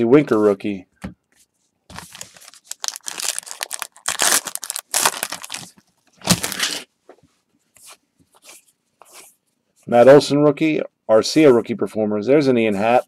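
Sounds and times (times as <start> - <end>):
foil wrapper crinkling and tearing: 1.9 - 6.9.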